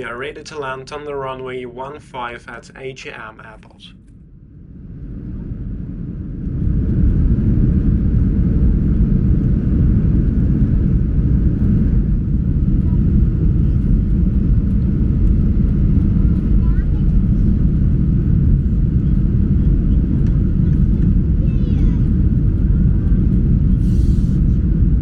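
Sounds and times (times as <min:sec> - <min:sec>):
airliner engine rumble: 0:00.0 - 0:25.0.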